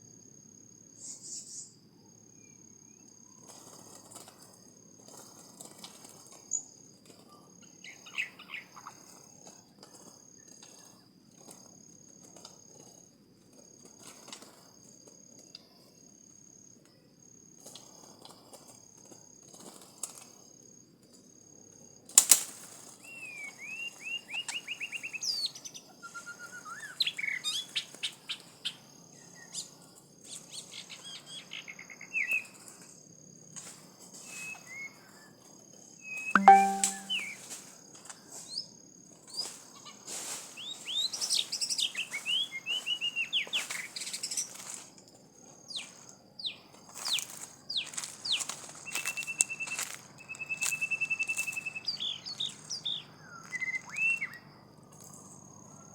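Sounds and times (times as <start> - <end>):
small birds chirping: 45.7 - 55.9.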